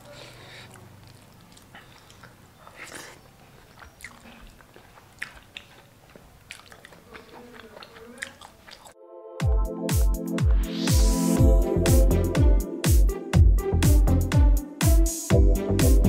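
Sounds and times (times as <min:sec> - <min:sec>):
person chewing: 0:00.0 - 0:09.0.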